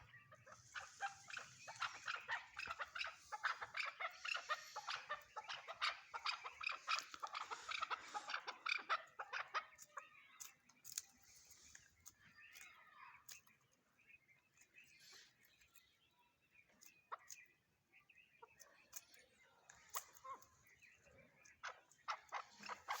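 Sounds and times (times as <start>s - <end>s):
partridge clucking calls: 0.0s - 13.7s, 16.6s - 23.0s.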